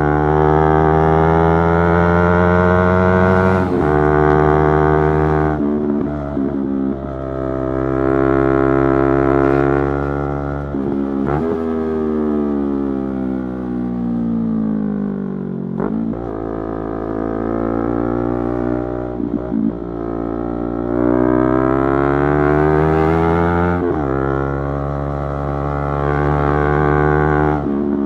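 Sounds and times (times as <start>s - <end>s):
motorcycle engine revving: 0.0s - 13.6s, 15.7s - 28.0s.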